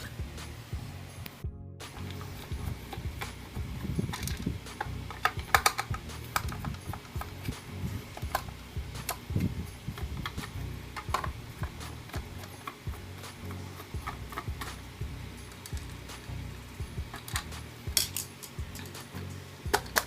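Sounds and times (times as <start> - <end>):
small clicks of handled parts: 4.1 - 9.3, 17.1 - 19.1, 19.7 - 20.0.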